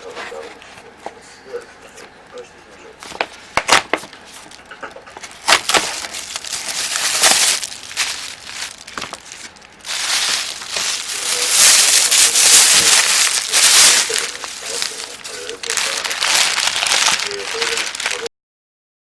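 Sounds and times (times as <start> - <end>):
plastic crinkling and rustling: 3.0 - 18.3.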